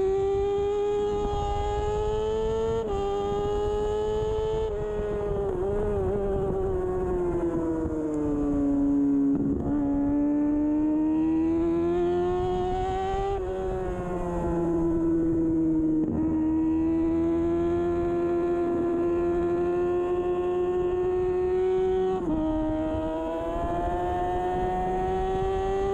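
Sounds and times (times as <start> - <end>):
motorcycle engine running hard: 0.0 - 25.9.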